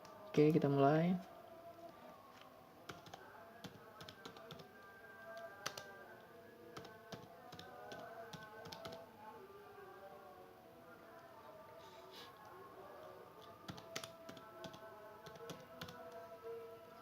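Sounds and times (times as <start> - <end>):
quiet background music: 0.0 - 17.0
keyboard typing: 2.9 - 6.0, 6.8 - 9.0, 13.4 - 16.2.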